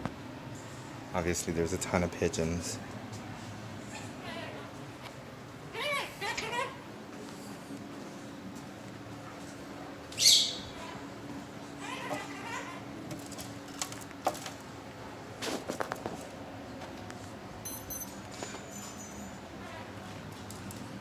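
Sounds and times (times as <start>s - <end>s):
faint steady hum: 0.0s - 21.0s
bird squawking: 10.2s - 10.9s.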